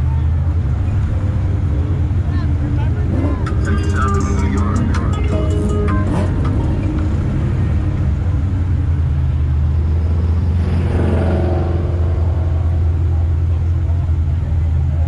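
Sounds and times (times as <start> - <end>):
car engine deep rumble: 0.0 - 15.0
higher engine note: 2.2 - 15.0.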